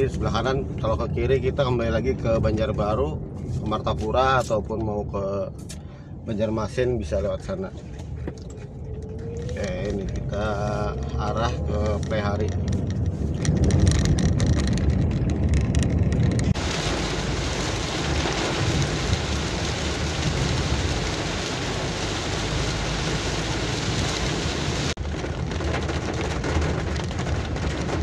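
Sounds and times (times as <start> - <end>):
car humming: 0.0 - 28.0
raindrops ticking: 8.3 - 28.0
heavy rain hissing: 16.6 - 25.0.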